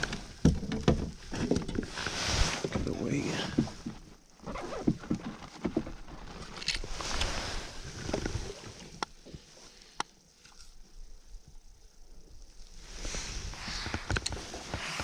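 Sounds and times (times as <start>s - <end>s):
rustling and knocking: 0.0s - 8.7s
water movement: 0.0s - 15.0s.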